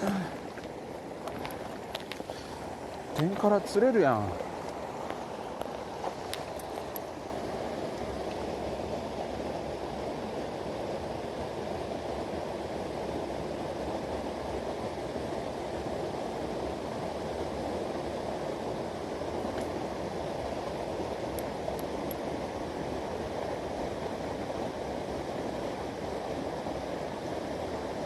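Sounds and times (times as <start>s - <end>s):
mountain stream rushing: 0.0s - 28.0s.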